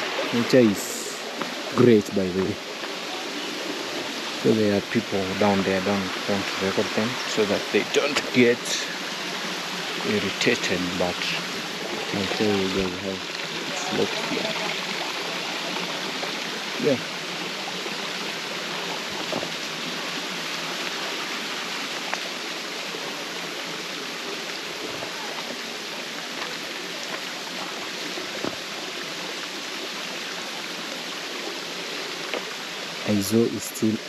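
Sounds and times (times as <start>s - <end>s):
water flowing over rocks: 0.0s - 34.0s.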